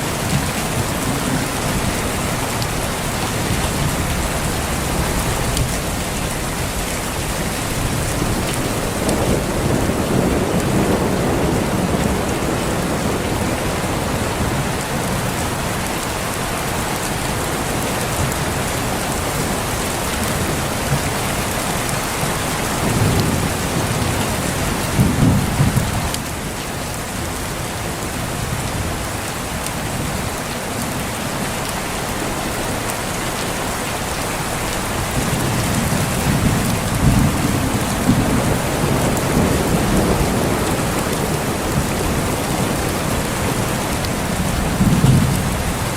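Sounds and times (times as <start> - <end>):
heavy rain: 0.0 - 45.9
rolling thunder: 0.2 - 15.5, 21.9 - 26.6, 35.1 - 45.9.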